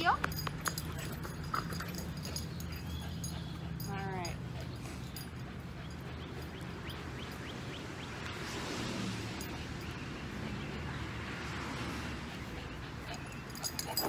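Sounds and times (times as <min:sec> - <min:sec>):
bird chirping: 0:00.8 - 0:03.9.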